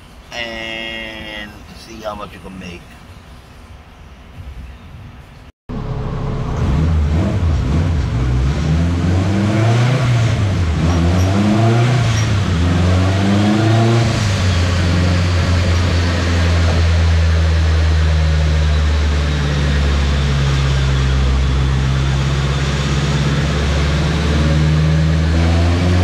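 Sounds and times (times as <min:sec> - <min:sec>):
turbocharged car engine revving: 0:05.7 - 0:26.0.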